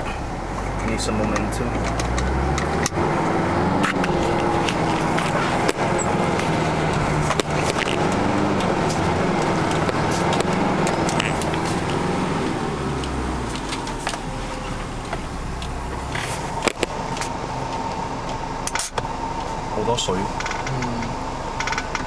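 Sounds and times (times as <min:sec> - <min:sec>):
off-road vehicle engine revving: 0:00.0 - 0:22.0
vehicle knocks and rattles: 0:01.2 - 0:17.9.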